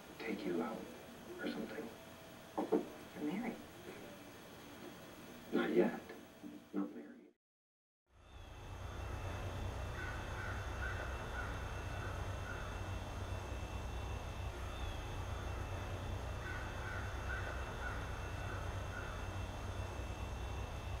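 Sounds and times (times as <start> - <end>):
low outdoor rumble: 8.2 - 21.0.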